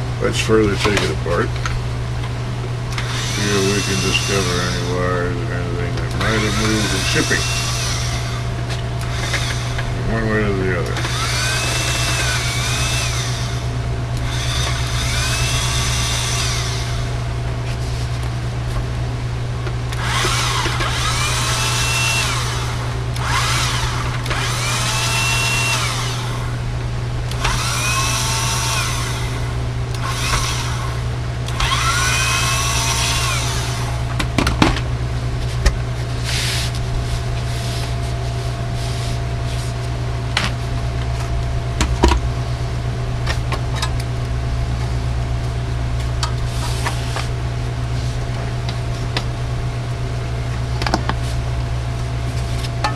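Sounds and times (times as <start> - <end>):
steady low hum: 0.0 - 52.9
electric screwdriver whining: 3.0 - 5.0, 6.2 - 9.9, 10.9 - 17.1, 19.9 - 26.6, 27.3 - 34.0.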